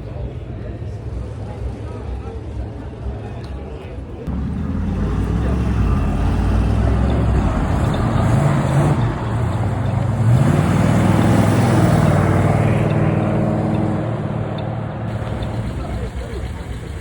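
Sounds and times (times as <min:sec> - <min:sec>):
car engine revving: 0:04.3 - 0:17.0.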